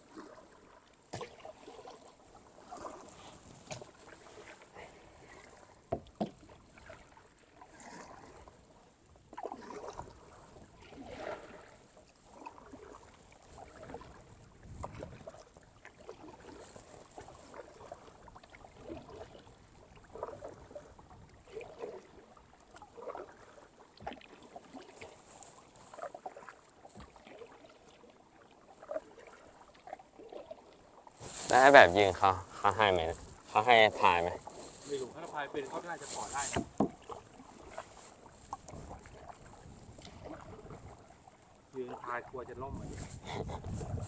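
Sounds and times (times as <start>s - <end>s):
paddle strokes splashing in water: 0.0s - 44.0s.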